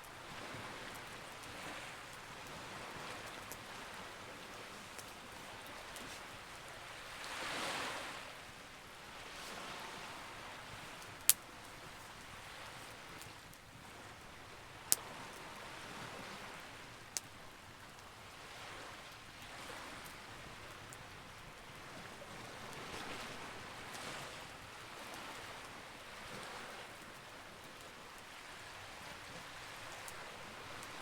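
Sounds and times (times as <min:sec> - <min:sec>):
campfire hissing and crackling: 0:00.0 - 0:31.0
fire crackling pops: 0:04.8 - 0:06.3, 0:10.6 - 0:13.8.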